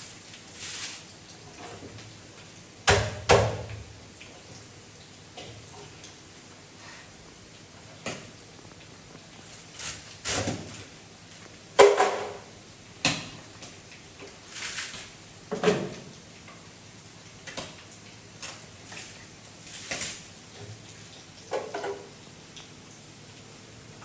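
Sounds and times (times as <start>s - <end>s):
soft scraping or rustling: 0.0s - 1.8s, 9.0s - 11.5s, 14.4s - 15.2s.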